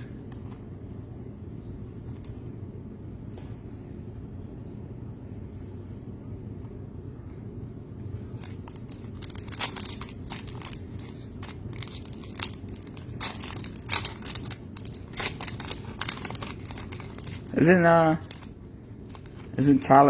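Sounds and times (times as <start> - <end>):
low steady hum: 0.0 - 20.0
plastic wrapper crinkling and tearing: 8.2 - 20.0.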